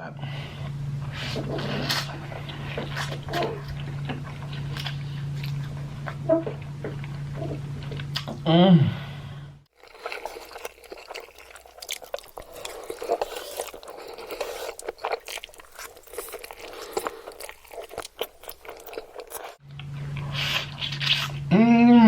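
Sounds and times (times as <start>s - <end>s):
food crunching: 9.7s - 21.5s
person chewing and biting food: 9.8s - 21.5s.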